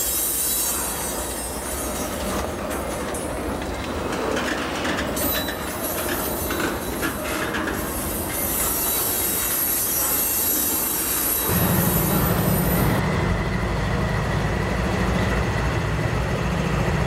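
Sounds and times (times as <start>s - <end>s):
high wheel squeal: 0.0s - 2.5s, 5.2s - 13.0s
wheels clicking over rail joints: 0.9s - 10.3s.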